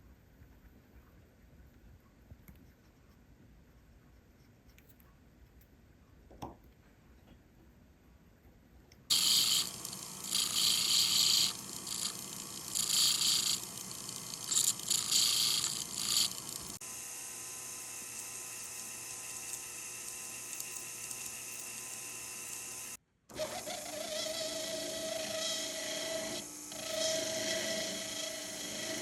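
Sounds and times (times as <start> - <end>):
scratchy sanding or filing: 9.1 - 16.7, 23.6 - 29.0
steady hum: 9.1 - 16.8.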